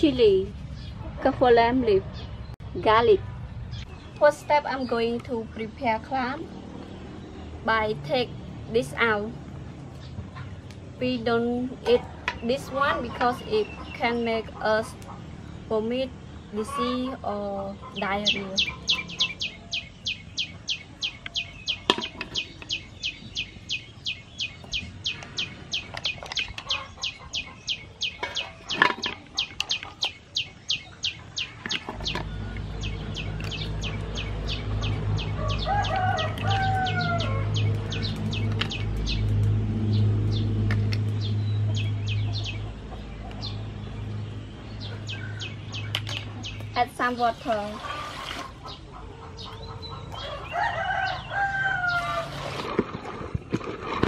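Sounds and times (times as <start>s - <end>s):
bird chirping: 9.9s - 52.7s
chicken calling: 25.1s - 33.6s.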